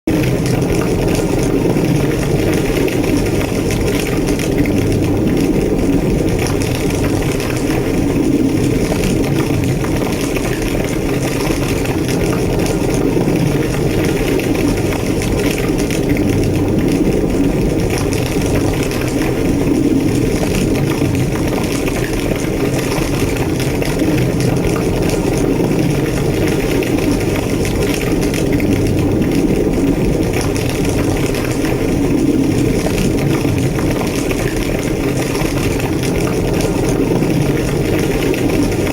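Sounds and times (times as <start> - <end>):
fire crackling: 0.1 - 38.9
fire roaring: 0.1 - 38.9.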